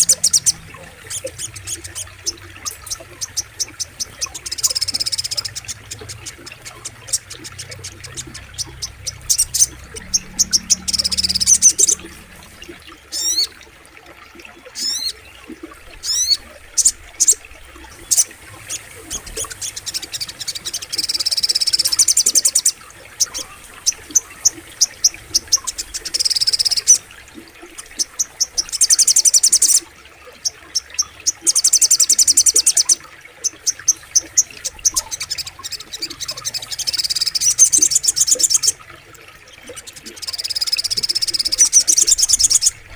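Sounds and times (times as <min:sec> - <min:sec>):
bird trilling: 0:00.0 - 0:13.6
flowing water: 0:00.0 - 0:42.9.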